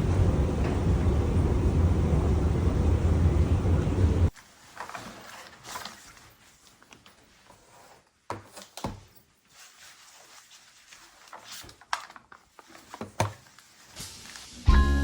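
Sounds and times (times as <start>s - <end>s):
faint room noise: 0.0s - 14.7s
music: 14.0s - 15.0s.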